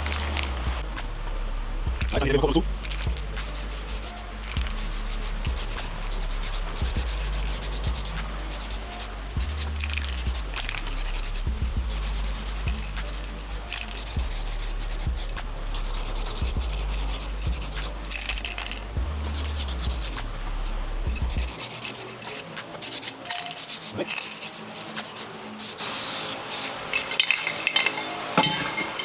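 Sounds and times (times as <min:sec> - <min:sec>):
low hum: 0:00.0 - 0:21.7
spray can hissing: 0:02.6 - 0:28.7.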